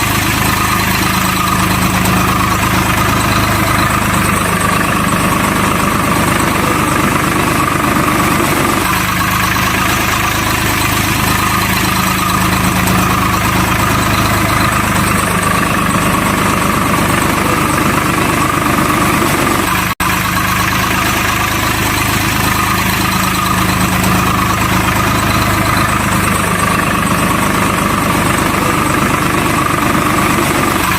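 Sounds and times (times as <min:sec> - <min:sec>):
truck engine idling: 0:00.0 - 0:30.9.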